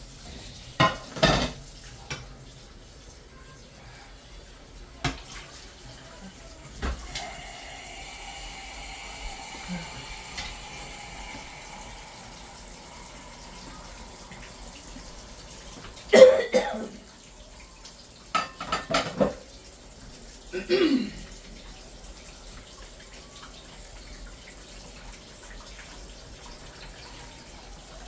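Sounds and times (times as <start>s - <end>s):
water running from a tap: 0.0s - 28.0s
person coughing: 16.1s - 17.0s, 20.6s - 21.2s.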